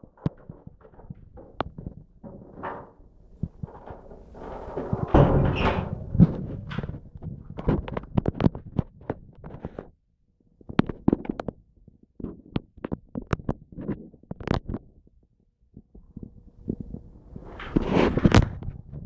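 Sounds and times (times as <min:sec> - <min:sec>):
clicks and knocks: 0:00.2 - 0:07.3
low rumbling: 0:03.4 - 0:07.5.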